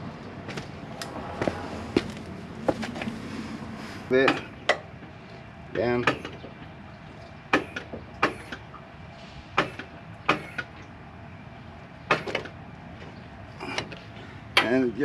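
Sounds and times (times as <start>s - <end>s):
hand tools clicking and knocking: 4.2s - 4.9s, 6.0s - 6.4s, 14.6s - 14.8s.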